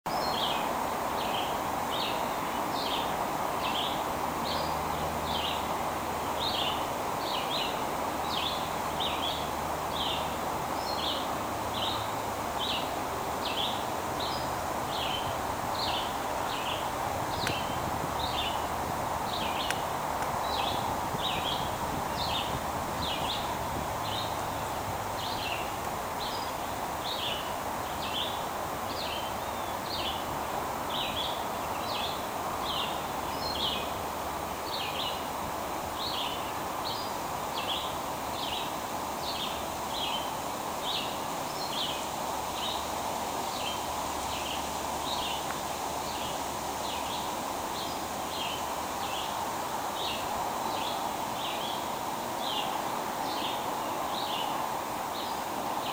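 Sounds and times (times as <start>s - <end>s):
stream water rushing: 0.1s - 55.9s
bird chirping: 6.4s - 24.5s.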